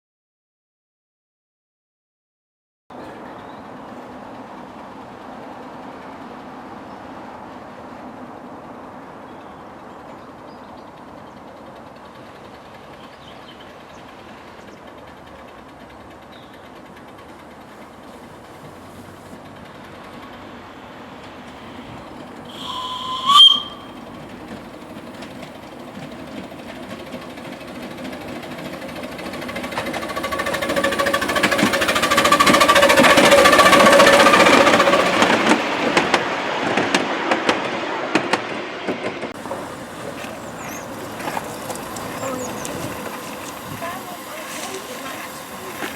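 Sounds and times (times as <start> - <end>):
miniature train running past: 2.9 - 45.9
locomotive whistle: 21.8 - 24.3, 29.6 - 36.2, 39.4 - 45.9.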